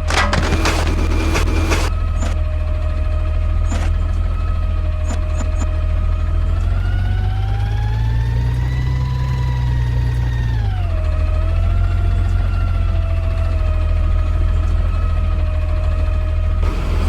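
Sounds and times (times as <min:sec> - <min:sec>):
high hydraulic whine: 0:00.0 - 0:01.9, 0:16.6 - 0:17.0
garbage truck engine rumble: 0:16.6 - 0:17.0.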